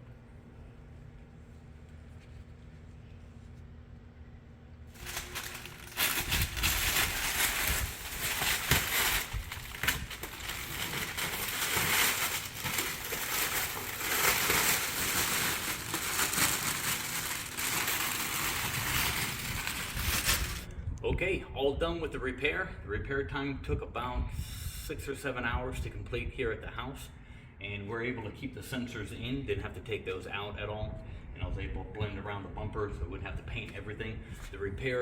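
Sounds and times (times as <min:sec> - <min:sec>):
dense crinkling and crackling: 0:04.9 - 0:20.7.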